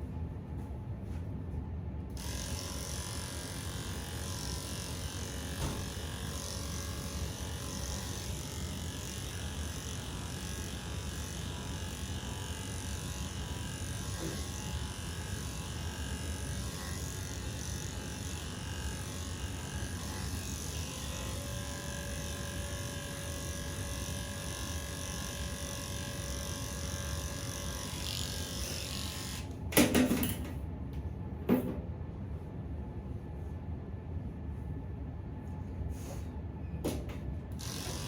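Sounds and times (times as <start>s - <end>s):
electric pet clippers running: 2.1s - 30.5s, 37.0s - 38.0s.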